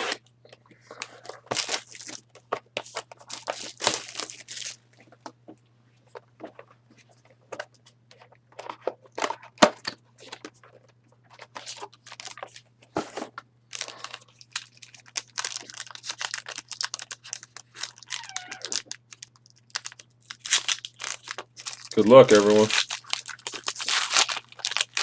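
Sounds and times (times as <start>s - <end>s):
faint electrical hum: 0.0s - 25.0s
packaging being torn and crinkled: 1.2s - 2.2s, 2.8s - 4.8s, 11.4s - 12.6s, 13.7s - 25.0s.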